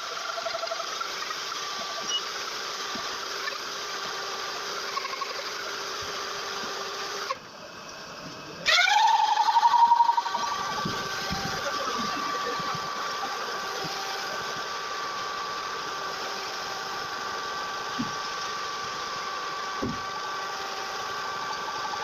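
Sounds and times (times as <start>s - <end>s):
diesel engine revving: 9.0s - 22.0s.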